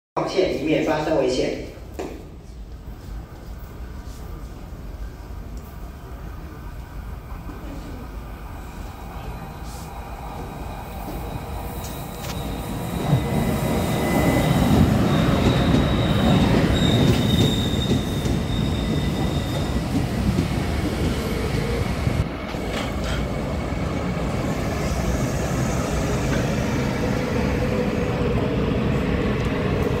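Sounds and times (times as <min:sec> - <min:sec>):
train wheels rumbling: 0:07.3 - 0:30.0
high-pitched wheel squeals: 0:12.2 - 0:19.7.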